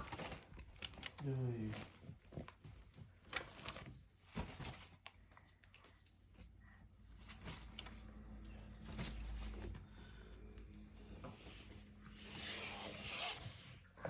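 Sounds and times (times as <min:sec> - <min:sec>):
light clicks and taps: 0:05.0 - 0:06.6.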